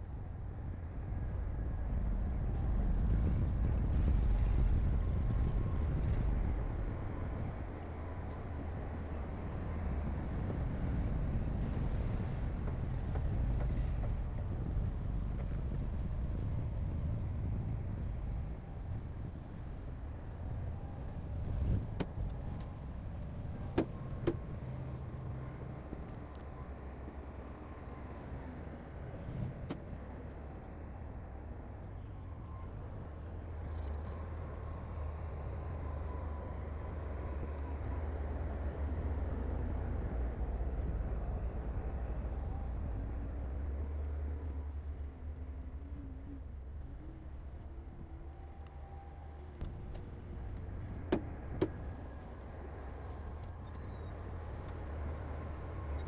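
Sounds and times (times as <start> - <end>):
diesel machinery rumbling: 2.6 - 31.6.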